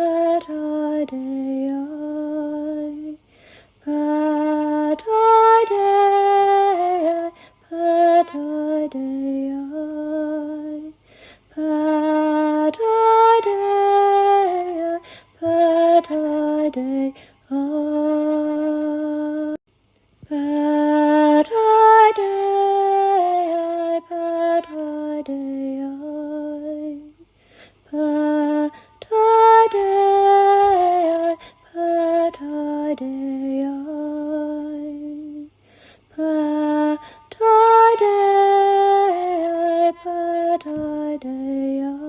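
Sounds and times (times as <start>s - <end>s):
singer breathing: 3.2s - 3.8s, 7.4s - 7.6s, 11.0s - 11.5s, 15.0s - 15.4s, 27.3s - 27.8s, 35.5s - 36.1s.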